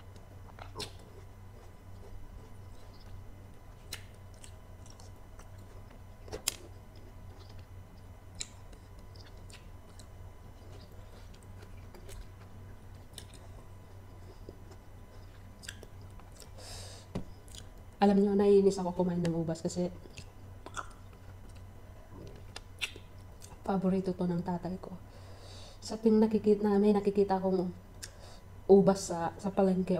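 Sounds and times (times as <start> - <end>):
person chewing grapes: 0.0 - 16.7, 17.3 - 17.9, 20.0 - 23.6
steady low hum: 0.0 - 29.9.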